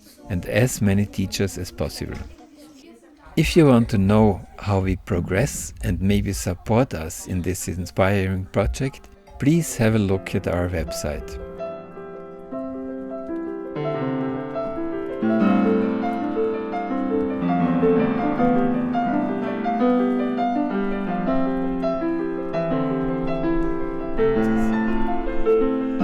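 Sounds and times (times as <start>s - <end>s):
piano melody with chords: 5.2s - 26.0s.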